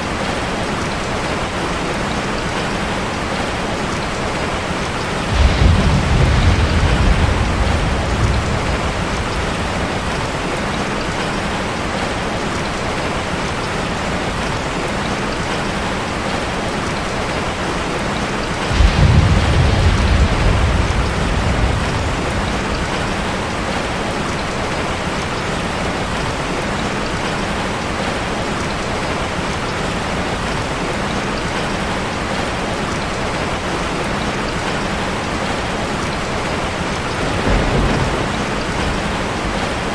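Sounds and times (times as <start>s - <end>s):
heavy rain on a metal roof: 0.0s - 39.9s
low rolls of thunder: 4.3s - 12.1s, 18.2s - 26.3s, 36.2s - 39.9s.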